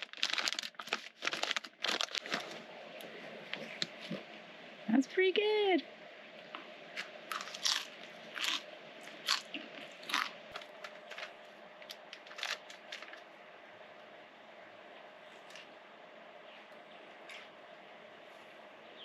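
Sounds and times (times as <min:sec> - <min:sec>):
person chewing crisp chips: 0:00.0 - 0:02.6, 0:07.3 - 0:13.2.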